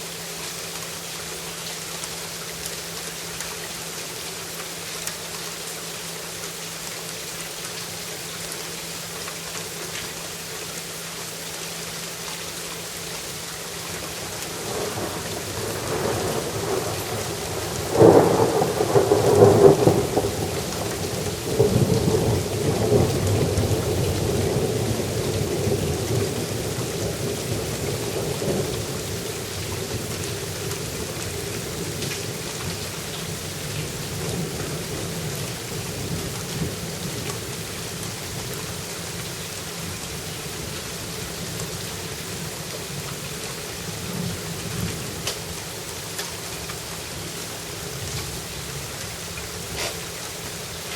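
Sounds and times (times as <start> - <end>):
steady rain: 0.0 - 50.9
thunder rumbling and cracking: 14.2 - 32.7.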